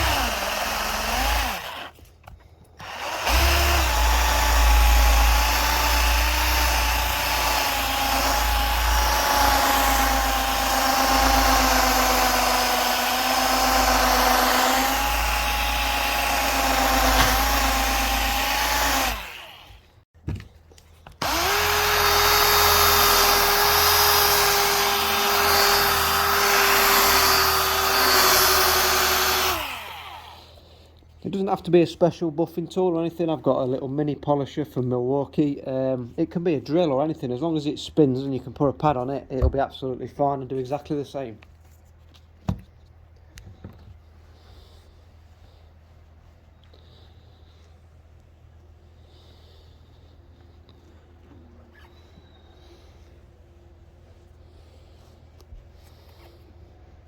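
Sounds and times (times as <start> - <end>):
rotary polisher motor whine: 0.0 - 1.9, 2.8 - 19.8, 21.2 - 30.4.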